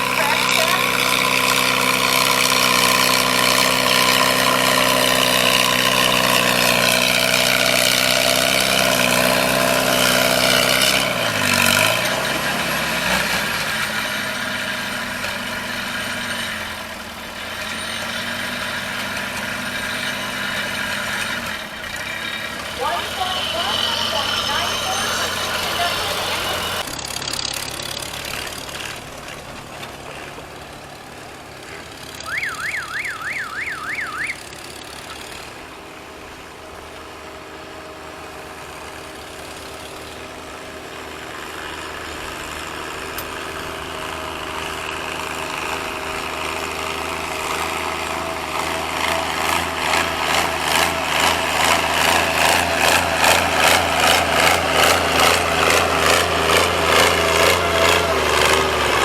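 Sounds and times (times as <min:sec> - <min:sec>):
tractor engine running: 0:00.0 - 0:59.0
warbling siren-like tone: 0:32.2 - 0:34.5.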